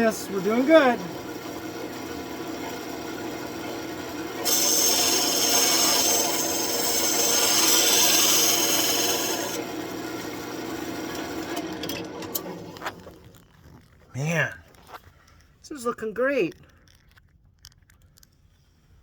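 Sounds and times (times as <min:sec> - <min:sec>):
wood lathe humming: 0:00.0 - 0:12.8
rough hiss of wood cutting: 0:04.4 - 0:09.6.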